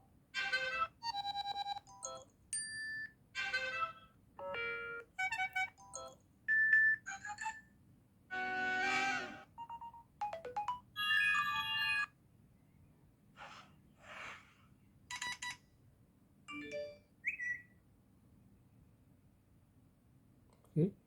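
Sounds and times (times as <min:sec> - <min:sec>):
phone alert tones: 0:09.6 - 0:12.1.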